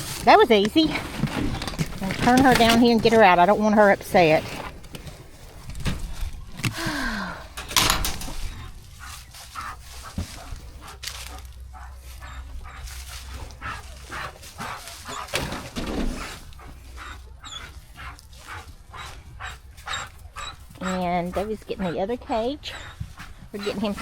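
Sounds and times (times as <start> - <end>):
dog moving about: 0.0 - 6.8, 7.5 - 24.0
light knocks and rattles: 0.0 - 18.1.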